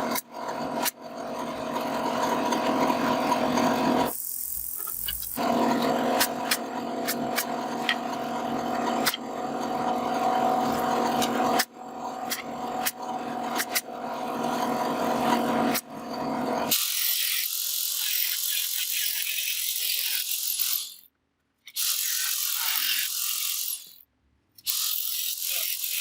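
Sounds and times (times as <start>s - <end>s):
woodworking power tool humming: 0.0s - 17.0s.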